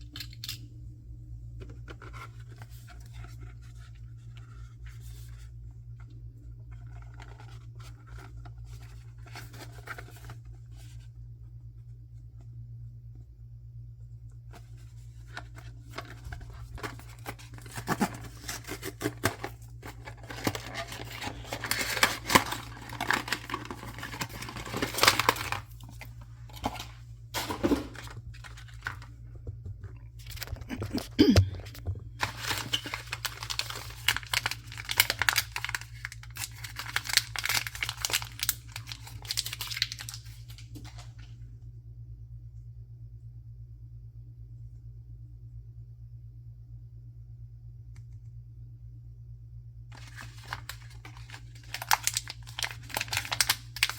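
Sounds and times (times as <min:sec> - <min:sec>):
low background hum: 0:00.0 - 0:53.9
packaging being torn and crinkled: 0:14.8 - 0:29.1, 0:30.2 - 0:41.1, 0:49.9 - 0:53.9.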